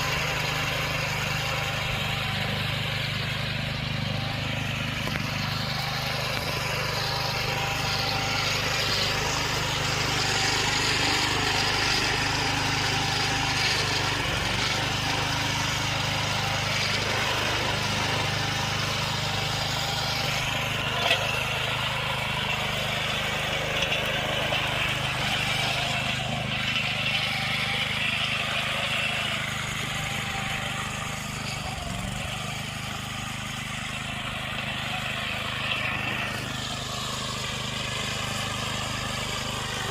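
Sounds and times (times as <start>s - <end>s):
small gasoline engine running: 0.0s - 39.9s.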